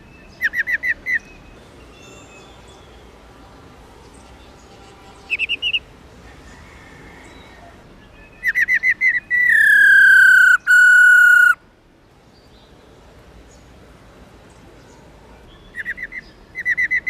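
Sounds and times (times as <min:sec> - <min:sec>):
bird calling with whistles: 0:00.2 - 0:01.4, 0:08.2 - 0:11.6, 0:15.6 - 0:17.0.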